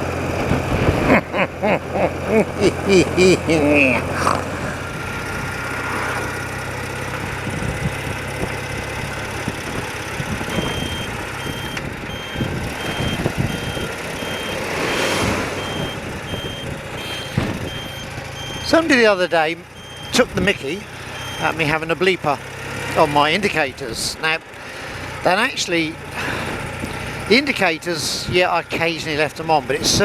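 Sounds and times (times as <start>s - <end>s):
motorcycle riding: 0.0s - 30.0s
wind and road noise: 0.0s - 30.0s
indicator beeping: 10.5s - 14.7s, 15.6s - 18.9s, 19.7s - 20.2s, 21.2s - 21.6s.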